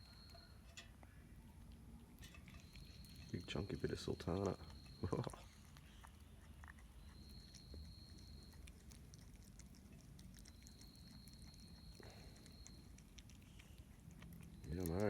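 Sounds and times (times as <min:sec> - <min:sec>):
faint high-pitched tone: 0:00.0 - 0:01.6
possum chewing clicks: 0:01.6 - 0:15.0.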